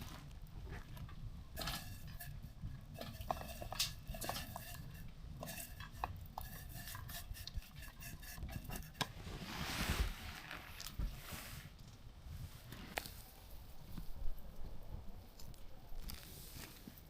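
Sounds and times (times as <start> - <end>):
rustling: 0.0 - 17.0
metal utensils clinking: 1.6 - 7.2.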